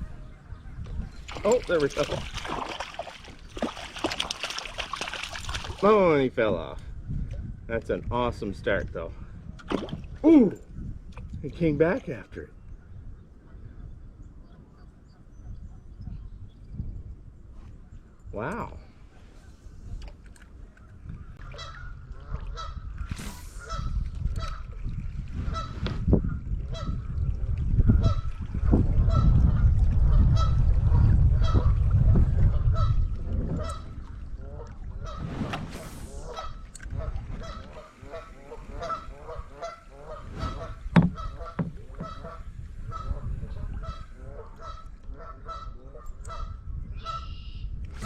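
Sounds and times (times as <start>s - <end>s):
waterfowl honking: 21.4s - 23.0s, 36.2s - 47.5s.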